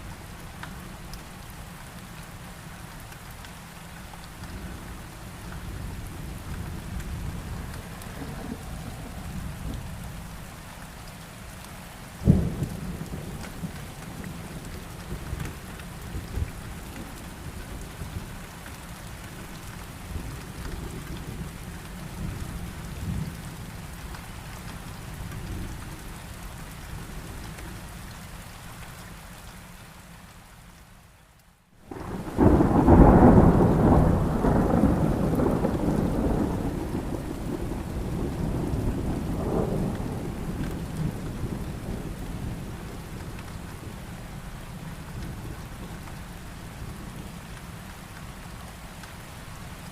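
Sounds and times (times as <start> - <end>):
rain: 0.0 - 49.9
sharp thunderclap: 31.9 - 42.1
rolling thunder: 31.9 - 44.0.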